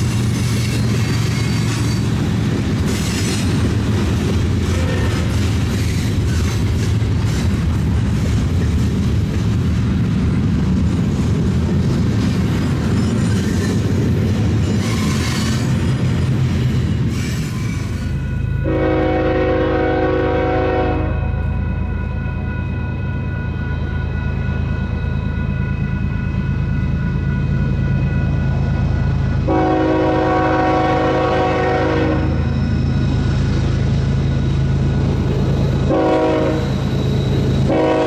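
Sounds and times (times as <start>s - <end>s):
freight train wheels rumbling: 0.0s - 38.0s
locomotive air horn chord: 4.6s - 5.4s, 18.6s - 21.6s, 29.5s - 32.5s, 35.9s - 36.8s, 37.6s - 38.0s.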